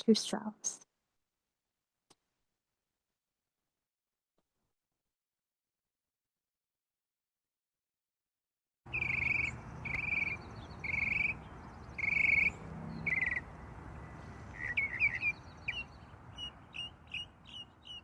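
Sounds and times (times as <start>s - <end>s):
buzzy trilled bird calls: 8.9s - 18.0s
sharp bird chirps: 8.9s - 18.0s.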